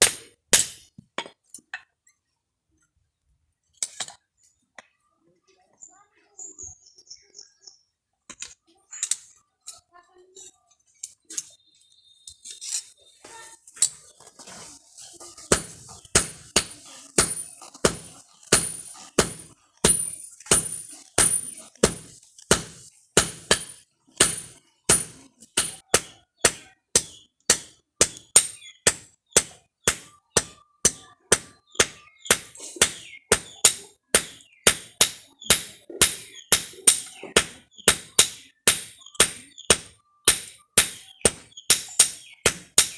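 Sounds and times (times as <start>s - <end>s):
hammer striking steel on anvil: 0.0s - 1.4s, 15.4s - 42.9s.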